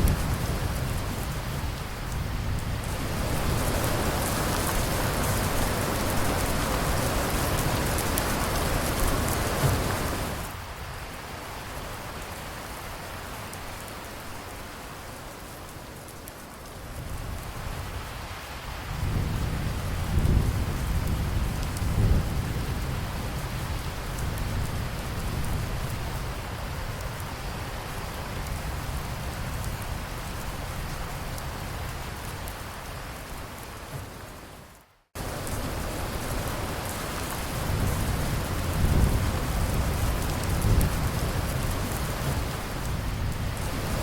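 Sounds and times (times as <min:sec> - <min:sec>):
low roll of thunder: 0:00.0 - 0:10.5, 0:18.9 - 0:27.2, 0:35.2 - 0:44.0
heavy rain hissing: 0:00.0 - 0:44.0.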